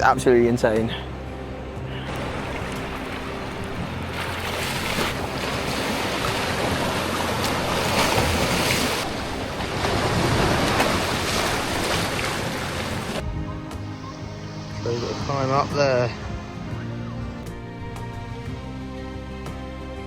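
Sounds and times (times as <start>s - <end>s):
sea surf washing against rocks: 2.1s - 13.2s
wind rushing over microphone: 5.1s - 17.4s.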